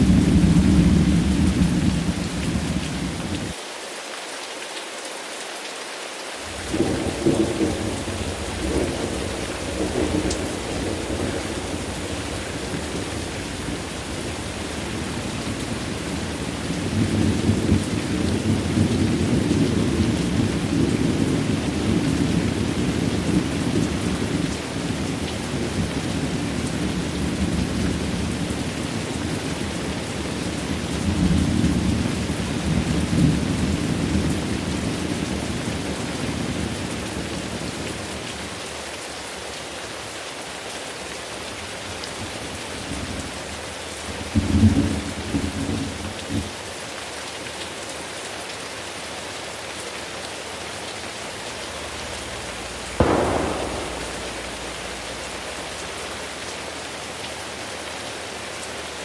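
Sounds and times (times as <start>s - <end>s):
rolling thunder: 0.0s - 3.5s, 6.5s - 15.8s, 53.0s - 55.4s
heavy rain: 0.0s - 59.0s.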